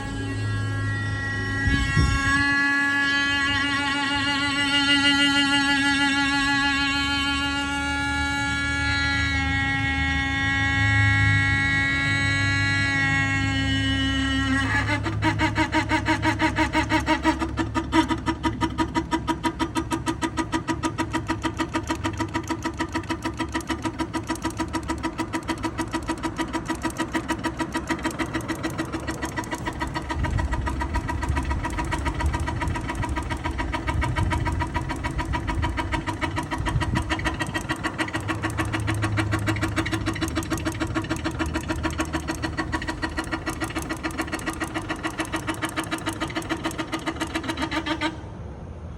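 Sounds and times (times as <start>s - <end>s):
steady droning tone: 0.0s - 18.7s, 19.4s - 48.9s
pipe chattering pulse: 12.4s - 48.2s.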